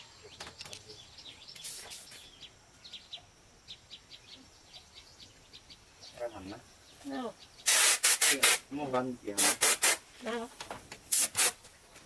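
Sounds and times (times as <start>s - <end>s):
small birds chirping: 0.0s - 12.0s
brief hiss: 1.5s - 2.3s, 7.6s - 10.2s, 11.0s - 11.8s.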